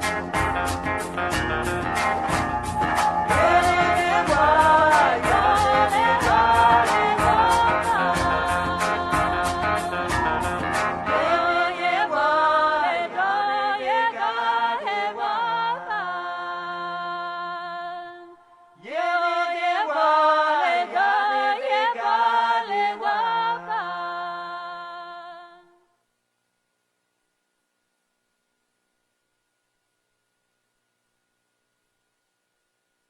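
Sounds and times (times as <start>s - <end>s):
unaccompanied chant-like singing: 1.8s - 25.8s.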